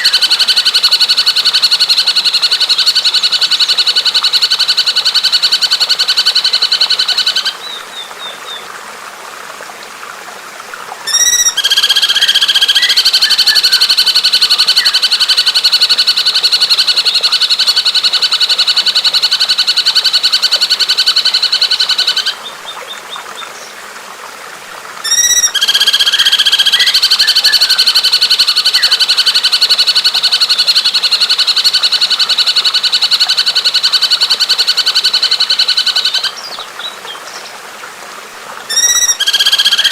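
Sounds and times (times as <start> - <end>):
songbird trilling: 11.1 - 22.4, 25.1 - 36.9, 38.7 - 39.9
faint bird chirps: 25.1 - 27.9, 38.7 - 39.9.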